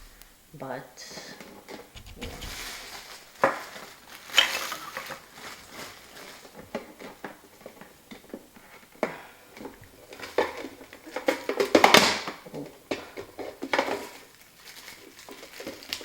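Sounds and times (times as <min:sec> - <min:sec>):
parts clicking and knocking: 0:02.0 - 0:03.0
packaging rustling: 0:02.0 - 0:07.3, 0:13.7 - 0:16.0.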